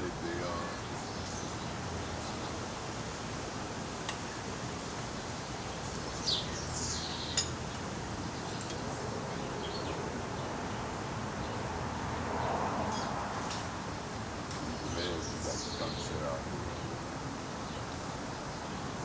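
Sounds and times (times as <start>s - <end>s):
steady outdoor hiss: 0.0s - 19.0s
birds chirping: 5.2s - 7.7s, 14.5s - 19.0s.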